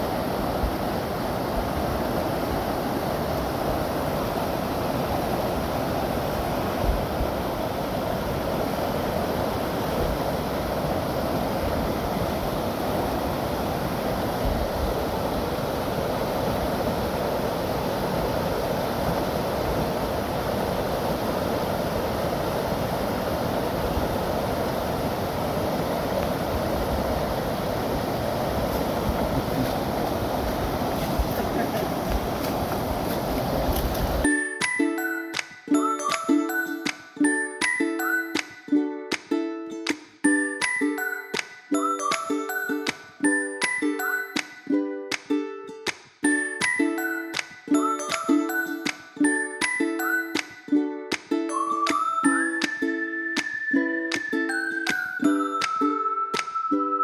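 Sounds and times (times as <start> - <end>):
wind buffeting microphone: 0.0 - 34.3
heavy rain rushing: 11.6 - 34.2.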